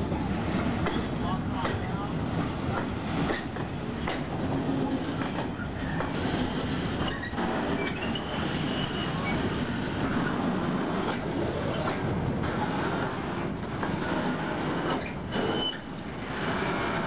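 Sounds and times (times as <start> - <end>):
train wheels rumbling on rail: 0.0 - 17.0
wheels clacking over rail joints: 0.0 - 17.0
high wheel squeal: 6.4 - 9.5, 14.9 - 17.0.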